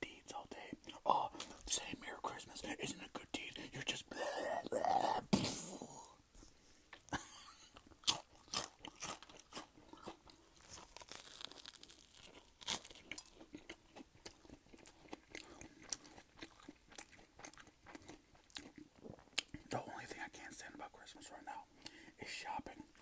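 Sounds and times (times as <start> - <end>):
person chewing crunchy food: 6.8 - 19.8.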